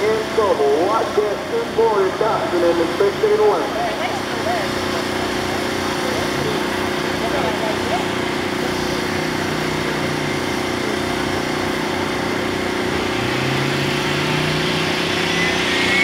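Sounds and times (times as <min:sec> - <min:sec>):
car engines idling: 0:00.0 - 0:16.0.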